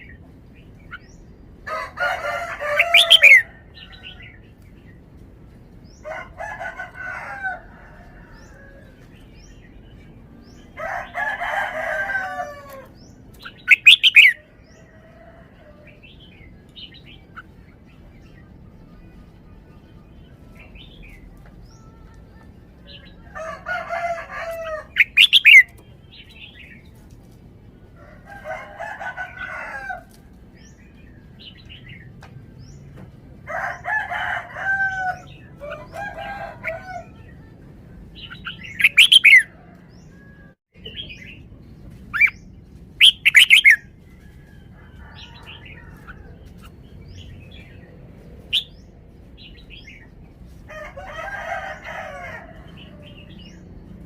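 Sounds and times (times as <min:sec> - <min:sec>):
rooster crowing: 0:01.6 - 0:04.4, 0:06.0 - 0:09.0, 0:10.7 - 0:13.0, 0:23.1 - 0:25.6, 0:28.0 - 0:30.2, 0:33.5 - 0:37.2, 0:43.3 - 0:46.4, 0:50.7 - 0:53.6
bird whistling song phrases: 0:13.6 - 0:14.4.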